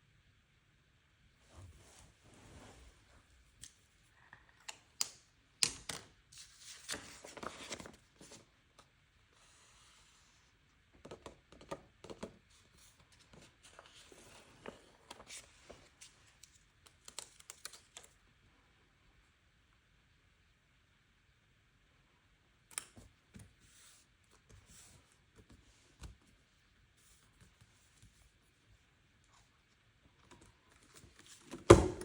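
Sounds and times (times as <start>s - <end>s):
paper crinkling and rustling: 6.4s - 8.4s, 12.1s - 18.2s.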